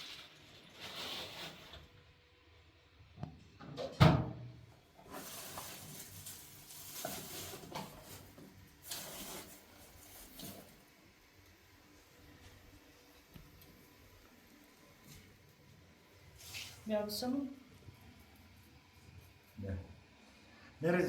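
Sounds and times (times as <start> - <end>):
rustling or scraping noise: 0.0 - 1.9, 5.0 - 10.8, 16.4 - 16.9.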